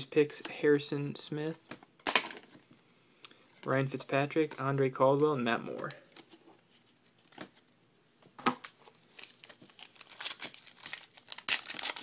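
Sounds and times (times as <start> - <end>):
card pack wrapper crinkling: 8.6 - 12.0.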